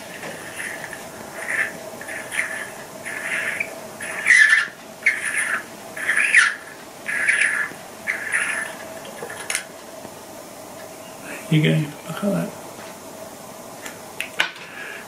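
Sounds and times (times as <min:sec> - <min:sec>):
bird calling: 0:00.0 - 0:09.5.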